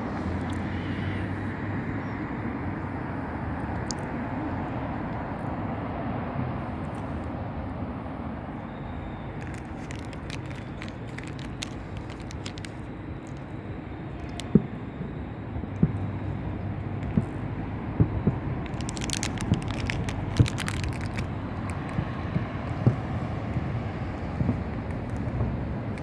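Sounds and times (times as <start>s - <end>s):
low background rumble: 0.0s - 26.0s
fast fireworks crackling: 9.4s - 13.4s, 18.4s - 22.1s.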